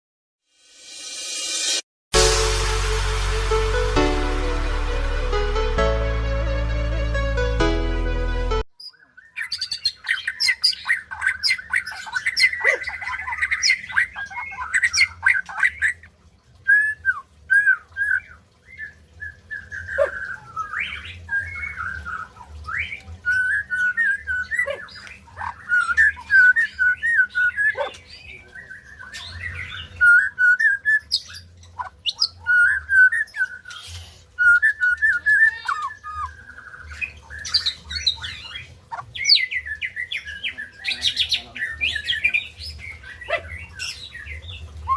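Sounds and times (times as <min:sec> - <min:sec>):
bird singing whistled phrases: 0:16.7 - 0:44.9.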